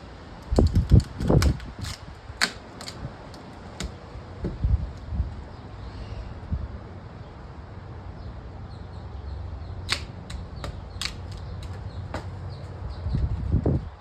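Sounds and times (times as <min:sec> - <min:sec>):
dead wood cracking: 0:00.4 - 0:04.5, 0:09.9 - 0:12.3.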